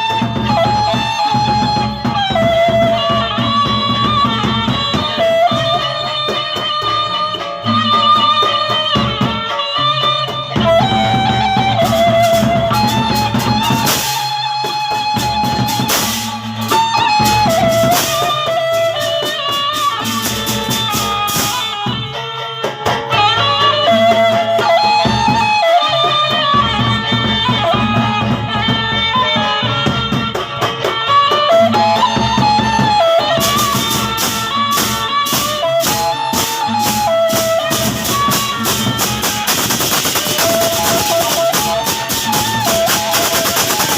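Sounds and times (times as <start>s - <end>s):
drums: 0.0s - 43.9s
sliding melody notes: 0.0s - 43.9s
clashing cymbals: 12.2s - 22.0s, 33.4s - 43.9s.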